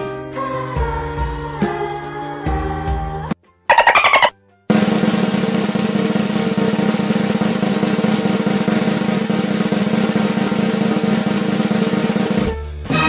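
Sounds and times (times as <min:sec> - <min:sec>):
snare drum roll: 0:03.7 - 0:13.0.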